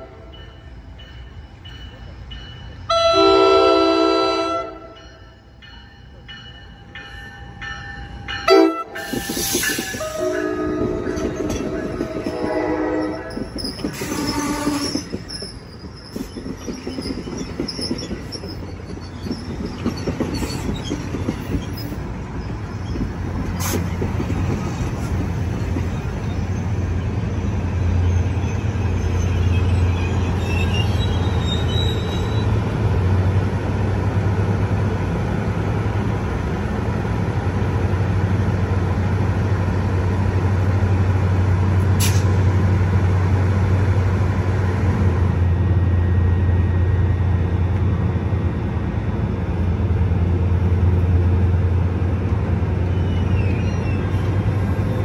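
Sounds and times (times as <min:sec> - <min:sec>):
train rolling past: 0:00.0 - 0:55.0
faint rising squeal: 0:11.0 - 0:23.6, 0:25.5 - 0:32.7, 0:45.4 - 0:48.4, 0:52.7 - 0:55.0.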